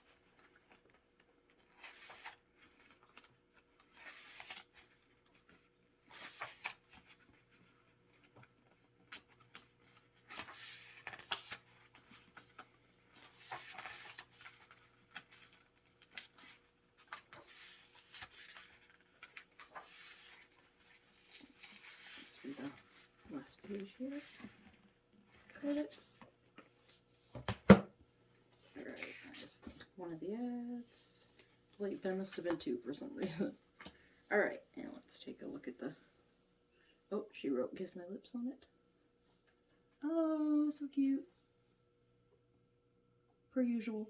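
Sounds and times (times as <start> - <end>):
photobook pages turning: 0.0 - 24.8.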